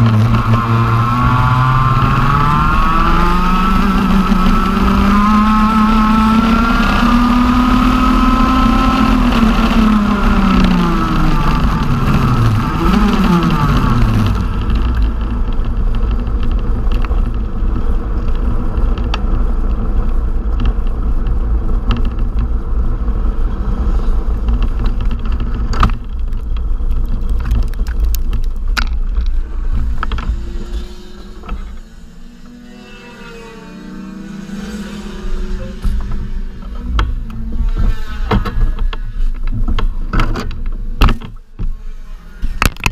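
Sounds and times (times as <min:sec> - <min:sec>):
kart engine revving: 0:00.0 - 0:18.8, 0:28.7 - 0:41.0
low rumble: 0:10.1 - 0:41.0.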